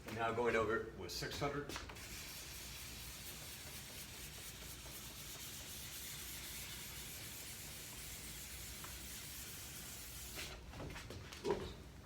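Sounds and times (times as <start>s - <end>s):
sandpaper rubbing on fabric: 2.0s - 10.6s.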